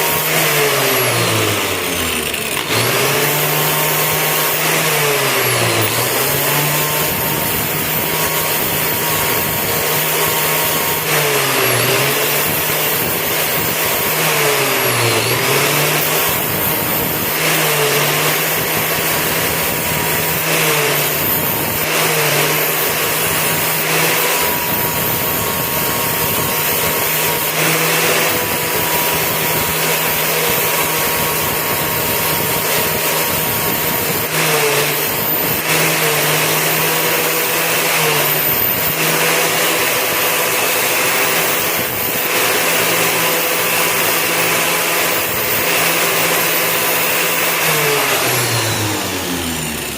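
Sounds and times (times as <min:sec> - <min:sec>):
power tool motor grinding: 0:00.0 - 0:49.9.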